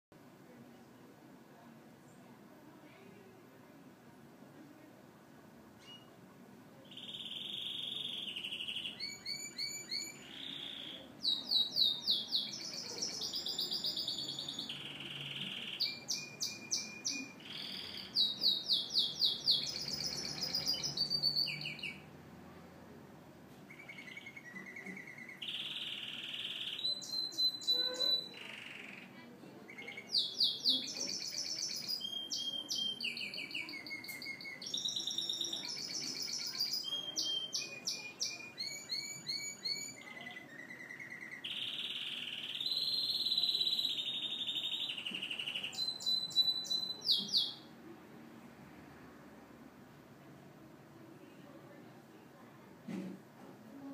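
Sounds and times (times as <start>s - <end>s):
canary singing: 6.9s - 22.1s, 23.7s - 47.7s.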